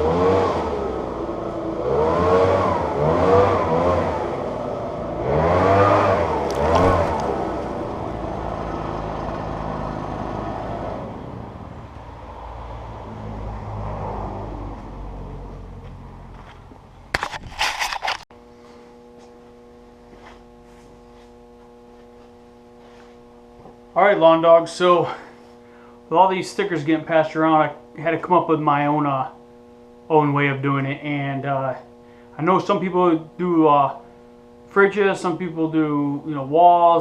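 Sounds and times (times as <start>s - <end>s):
engine revving: 0.0s - 17.2s.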